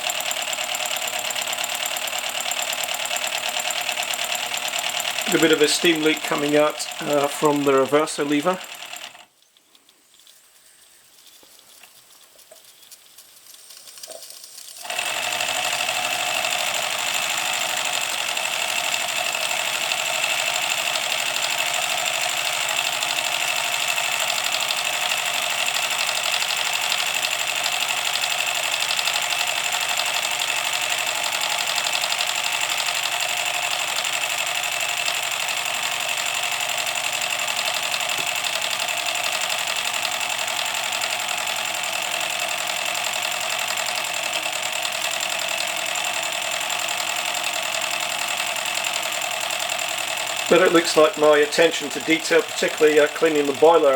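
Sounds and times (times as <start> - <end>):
steam locomotive exhaust chuffing: 0.0 - 9.2, 14.5 - 53.9.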